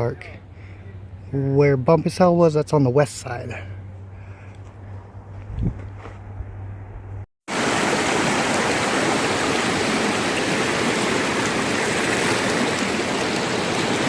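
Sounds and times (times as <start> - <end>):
low hum: 3.6 - 7.3.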